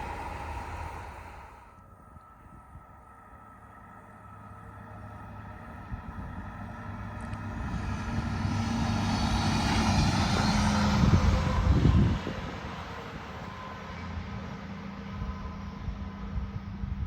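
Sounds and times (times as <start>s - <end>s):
train passing: 0.0s - 17.0s.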